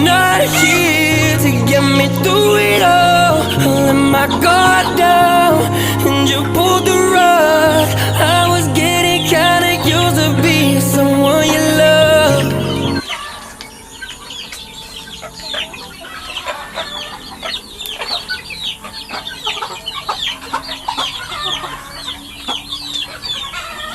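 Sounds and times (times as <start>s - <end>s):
pop song: 0.0s - 13.1s
chicks peeping: 0.0s - 23.9s.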